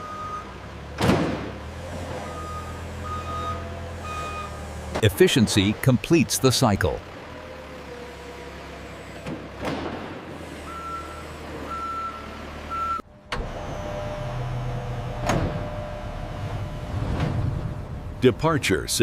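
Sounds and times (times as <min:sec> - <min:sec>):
truck engine rumbling: 0:00.0 - 0:19.0
reversing alarm beeping: 0:02.2 - 0:04.6, 0:10.6 - 0:13.0.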